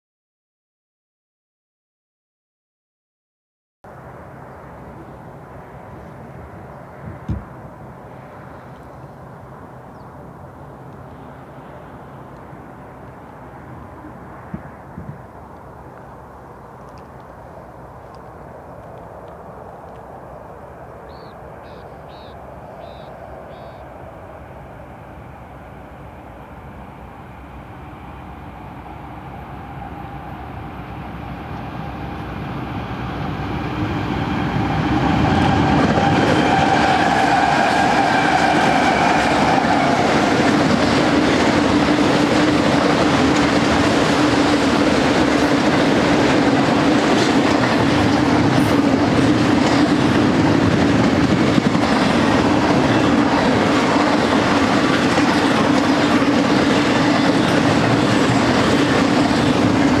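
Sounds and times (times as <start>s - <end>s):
diesel locomotive engine hum: 3.9s - 60.0s
train wheels rumbling and clacking: 30.9s - 60.0s.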